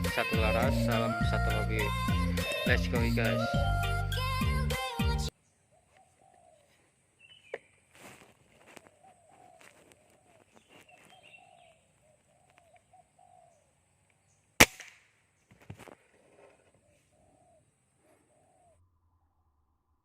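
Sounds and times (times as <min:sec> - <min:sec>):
dove cooing: 0:02.1 - 0:03.5, 0:05.7 - 0:06.8, 0:08.8 - 0:13.7, 0:16.7 - 0:18.8
air rifle shot: 0:14.6 - 0:15.1.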